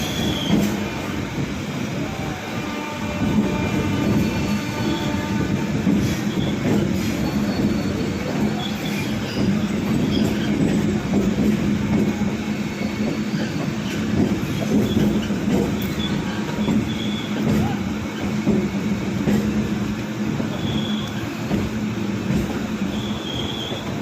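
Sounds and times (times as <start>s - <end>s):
train wheels rumbling on rail: 0.0s - 24.0s
wheels squealing: 12.7s - 17.4s, 20.5s - 21.6s, 22.8s - 24.0s.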